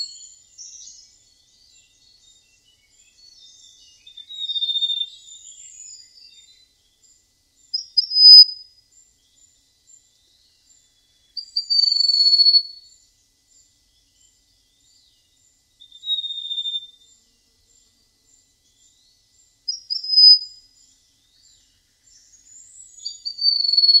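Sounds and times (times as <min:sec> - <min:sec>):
songbird whistling: 0:01.7 - 0:06.5, 0:07.7 - 0:08.6, 0:11.4 - 0:12.8, 0:15.8 - 0:17.0, 0:19.7 - 0:20.6, 0:22.4 - 0:24.0.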